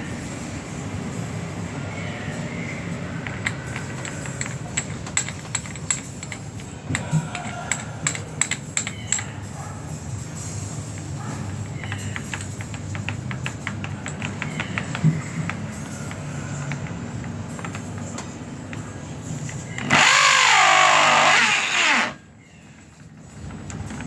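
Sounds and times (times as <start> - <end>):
small hard objects clicking: 3.2 - 9.4, 10.9 - 21.3.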